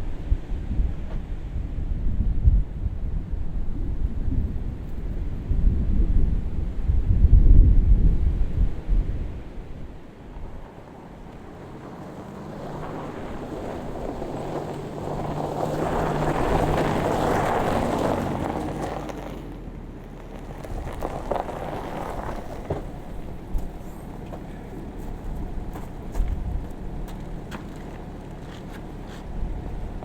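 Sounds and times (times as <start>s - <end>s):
wind noise on microphone: 0.0s - 10.8s, 12.6s - 19.7s, 20.4s - 24.2s, 25.0s - 28.2s, 29.2s - 30.0s
motor vehicle passing: 8.9s - 30.0s.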